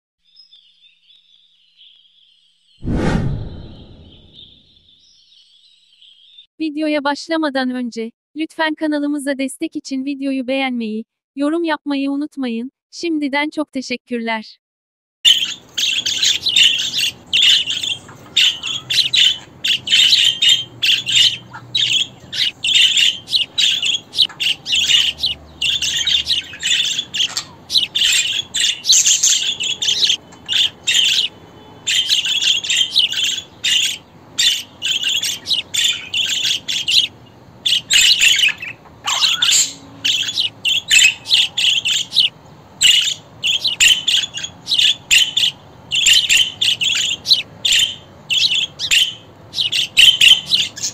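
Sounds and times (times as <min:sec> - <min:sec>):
budgerigars chattering and chirping: 0:15.3 - 0:50.9.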